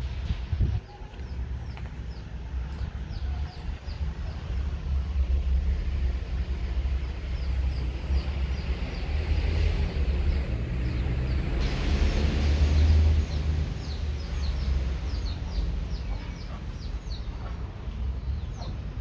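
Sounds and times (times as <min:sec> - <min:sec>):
steady low outdoor rumble: 0:00.0 - 0:19.0.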